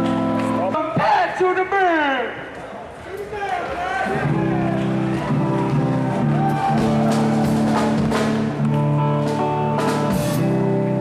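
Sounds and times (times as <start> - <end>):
electric guitar chords: 0.0 - 0.8, 4.2 - 11.0.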